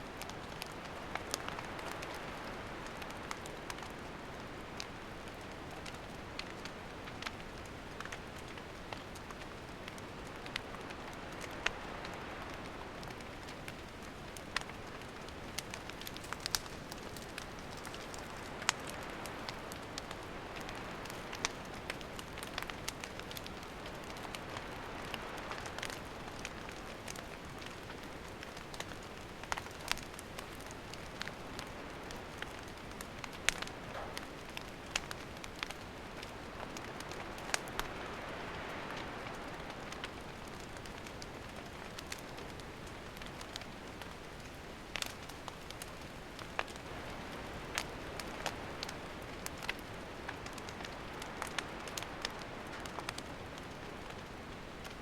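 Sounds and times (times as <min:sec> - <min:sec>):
fire crackles and pops: 0:00.0 - 0:55.0
campfire hissing: 0:00.1 - 0:55.0.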